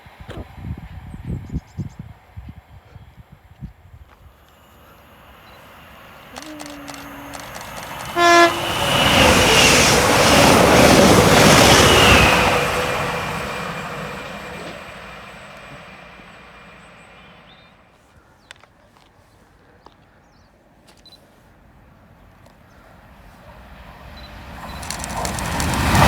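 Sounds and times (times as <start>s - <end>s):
train rushing past on rails: 0.0s - 17.9s, 22.6s - 26.0s
train horn toot: 6.3s - 10.4s.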